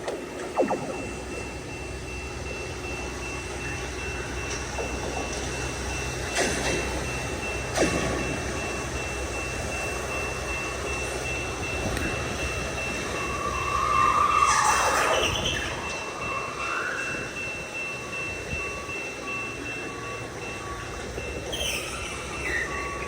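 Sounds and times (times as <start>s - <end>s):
high electronic tone: 0.1s - 3.8s
rail dragging along track: 1.6s - 23.0s.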